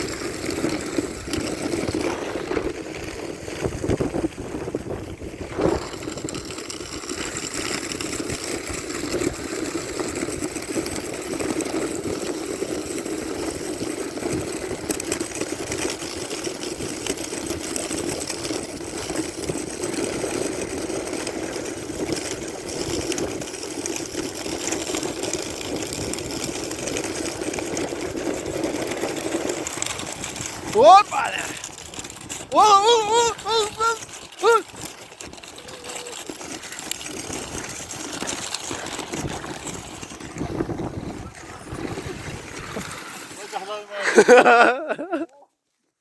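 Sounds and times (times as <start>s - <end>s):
sled knocking over bumps: 0.0s - 43.5s
sled runners scraping on snow: 0.0s - 46.0s.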